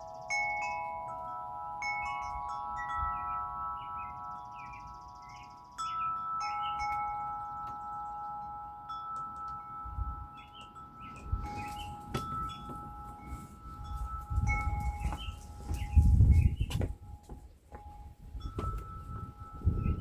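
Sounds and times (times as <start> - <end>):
metal wind chimes ringing: 0.0 - 20.0
wind gusts on microphone: 9.7 - 20.0.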